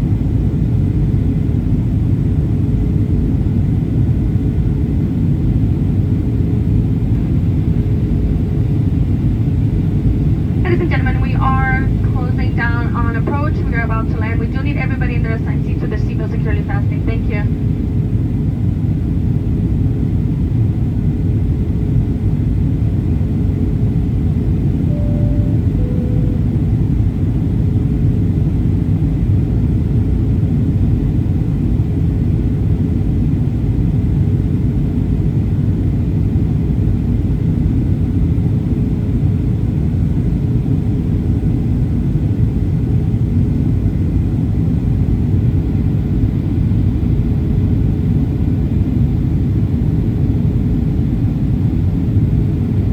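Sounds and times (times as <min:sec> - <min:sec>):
aircraft cabin engine rumble: 0:00.0 - 0:52.9
constant hum: 0:00.0 - 0:52.9
two-note falling chime: 0:24.9 - 0:26.7.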